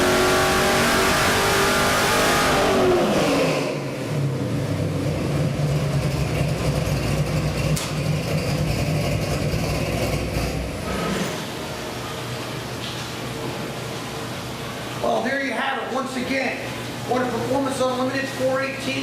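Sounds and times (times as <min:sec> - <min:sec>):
car engine revving then idling: 0:00.0 - 0:11.7.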